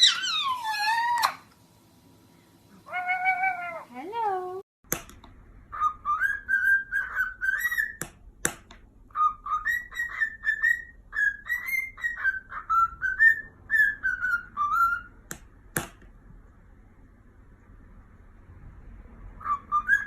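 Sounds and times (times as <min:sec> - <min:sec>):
parrot whistling: 0:00.0 - 0:01.4, 0:05.7 - 0:08.0, 0:09.1 - 0:15.2, 0:19.4 - 0:20.0.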